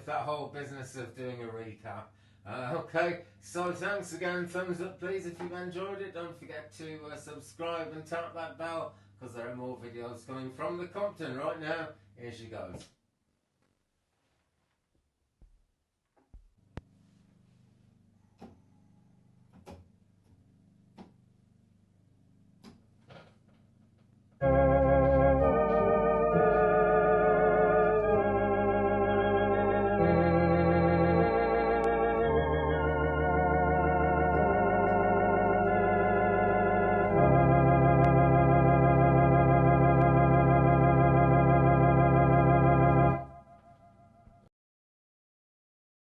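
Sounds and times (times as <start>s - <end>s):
electronic organ chords: 24.4s - 44.2s.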